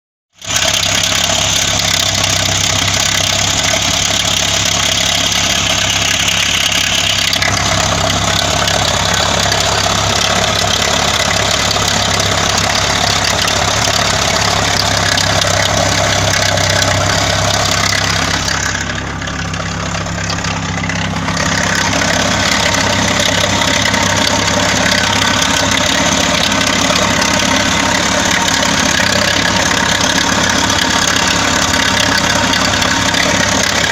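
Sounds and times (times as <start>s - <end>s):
engine idling with knock: 0.3s - 33.9s.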